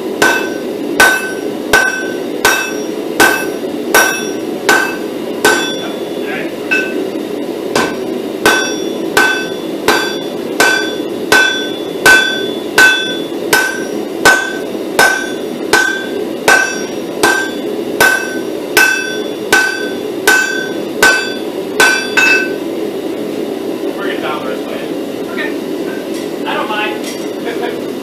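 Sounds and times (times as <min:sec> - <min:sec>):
hammer blows on an anvil: 0:00.2 - 0:07.1, 0:07.7 - 0:22.6.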